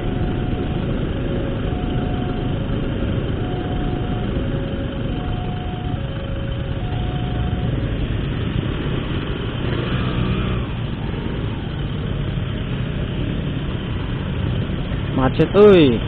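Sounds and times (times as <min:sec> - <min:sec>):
two-tone electronic warning signal: 0:00.0 - 0:08.0
motorcycle engine low rumble: 0:00.0 - 0:16.0
traffic noise: 0:00.0 - 0:16.0.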